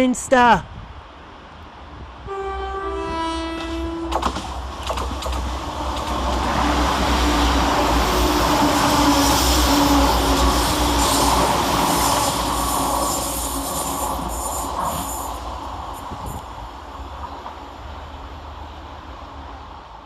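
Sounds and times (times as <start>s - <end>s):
train passing fast: 0.9s - 20.0s
two-tone train horn: 2.2s - 4.3s.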